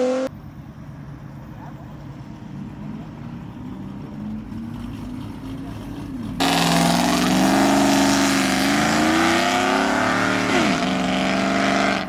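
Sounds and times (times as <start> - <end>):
car engine revving high: 6.4 - 12.0.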